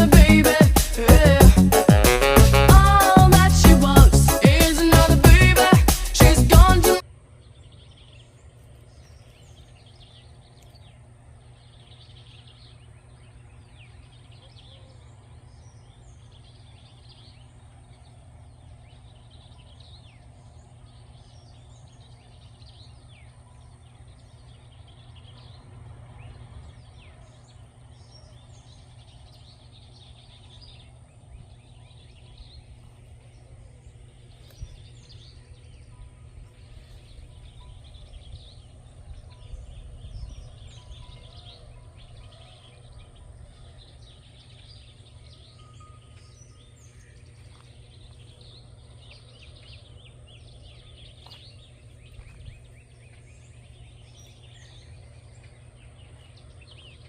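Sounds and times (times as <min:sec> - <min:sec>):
birds chirping and calling: 0:00.0 - 0:57.0
steady low rumble: 0:15.4 - 0:57.0.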